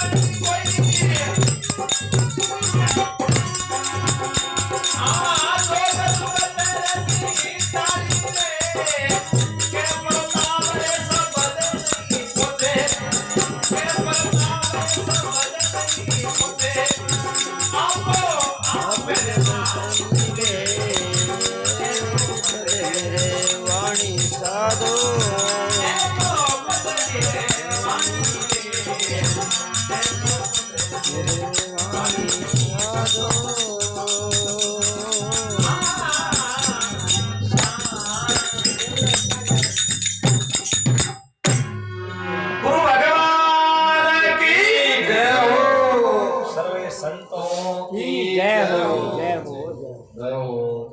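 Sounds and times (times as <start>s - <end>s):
devotional music: 0.0s - 39.4s
jingling rattle percussion: 0.0s - 41.7s
steady drum beat: 0.0s - 41.7s.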